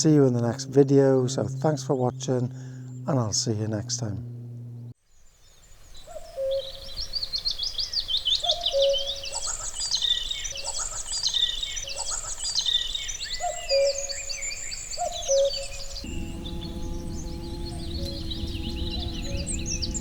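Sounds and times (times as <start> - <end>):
chorus of songbirds: 0.0 - 4.4, 5.0 - 20.0
steady low hum: 0.0 - 5.0, 15.6 - 20.0
cuckoo calling: 6.1 - 20.0.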